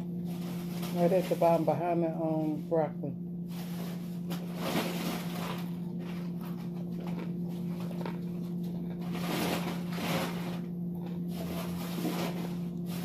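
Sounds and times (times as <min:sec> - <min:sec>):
steady low hum: 0:00.0 - 0:13.0
person chewing food: 0:05.3 - 0:09.8, 0:10.8 - 0:12.2.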